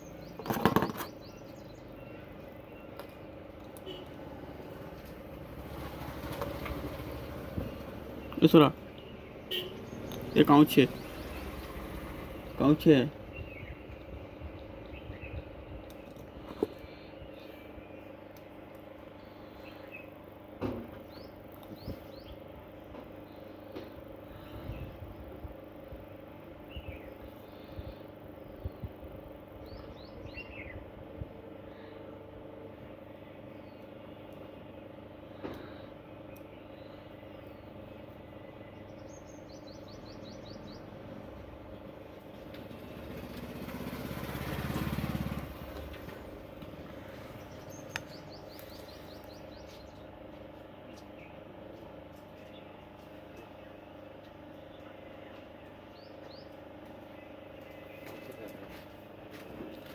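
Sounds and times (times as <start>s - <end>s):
distant traffic: 0.0s - 24.6s, 31.5s - 59.9s
small birds chirping: 0.0s - 59.9s.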